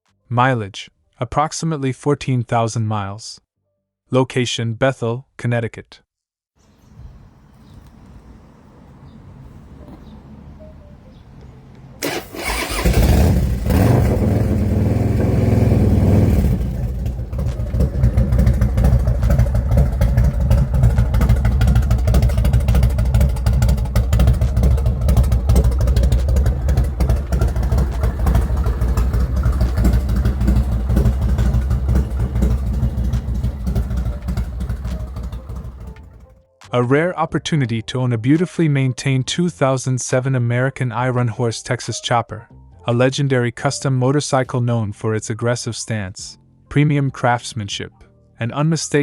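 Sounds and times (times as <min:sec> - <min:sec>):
starter cranking: 0:12.0 - 0:14.3, 0:16.4 - 0:36.3
motorcycle engine running and idling: 0:12.8 - 0:36.4.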